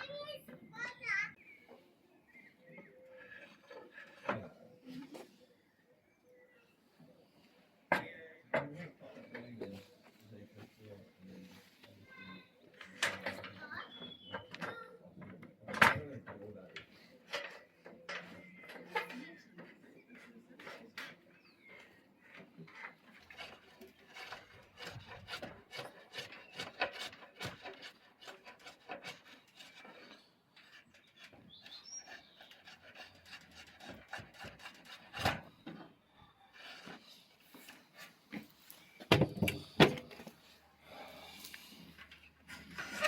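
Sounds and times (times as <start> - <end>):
hand tool rasping wood: 18.4 - 35.7, 36.6 - 38.5, 42.4 - 43.0.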